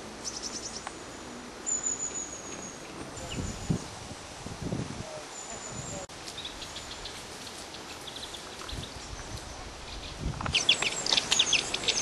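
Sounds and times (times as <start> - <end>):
birds calling faintly: 5.2 - 12.0.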